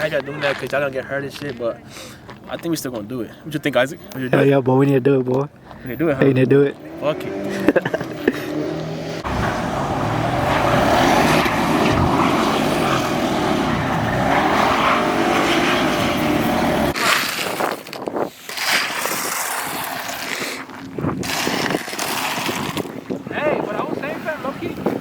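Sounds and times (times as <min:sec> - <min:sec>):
car engine revving: 0:06.7 - 0:17.0.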